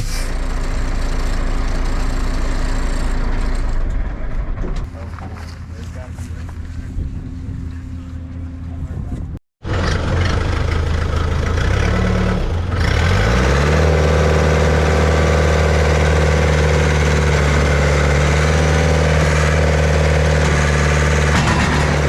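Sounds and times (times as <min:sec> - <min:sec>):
engine idling and revving: 0:00.0 - 0:08.8, 0:09.6 - 0:22.0.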